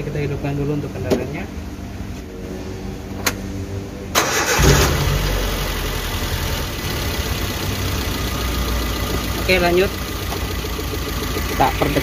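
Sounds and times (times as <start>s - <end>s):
car engine cranking and idling: 4.1s - 12.0s.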